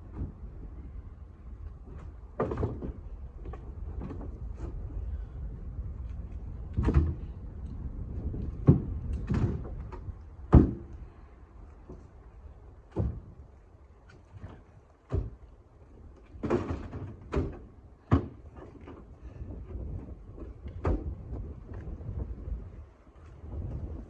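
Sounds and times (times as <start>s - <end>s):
low wind rumble: 0.0s - 24.0s
firewood knocking and thudding: 1.8s - 4.8s, 6.6s - 7.4s, 8.2s - 11.1s, 12.9s - 13.5s, 14.1s - 22.5s.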